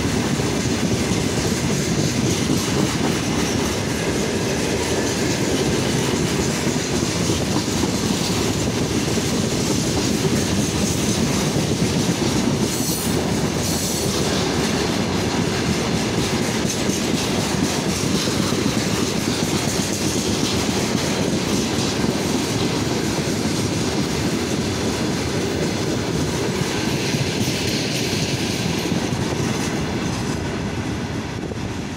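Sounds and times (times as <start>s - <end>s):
train wheels clattering over rails: 0.0s - 31.9s.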